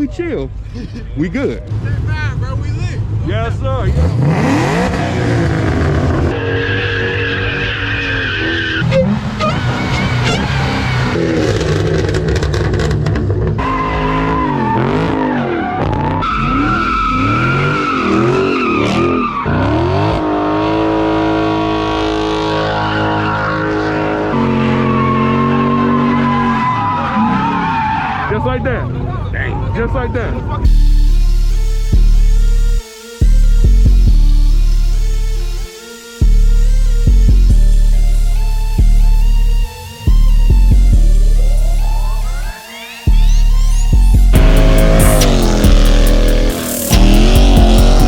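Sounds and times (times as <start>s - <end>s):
car engines revving hard: 1.6s - 48.0s
tires squealing: 3.8s - 30.7s, 41.4s - 48.0s.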